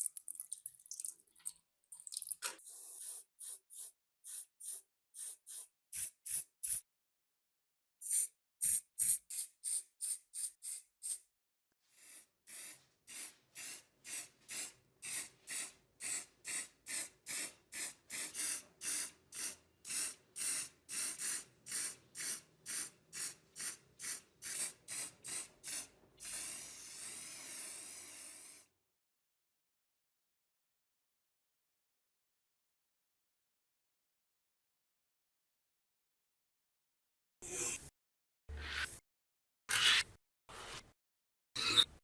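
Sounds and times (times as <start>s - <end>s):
nozzle spraying hiss: 12.0s - 28.6s.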